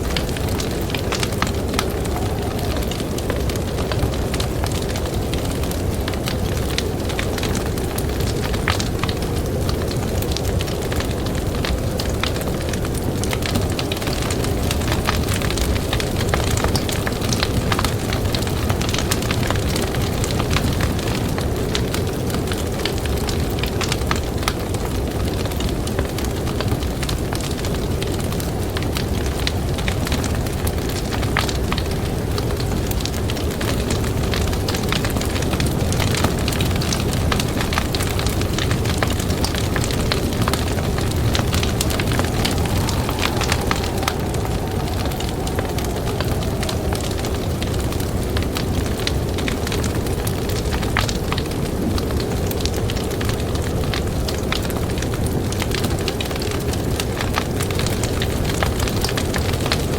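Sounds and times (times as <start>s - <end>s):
blizzard wind rushing: 0.0s - 59.9s
campfire crackling and popping: 0.0s - 59.9s.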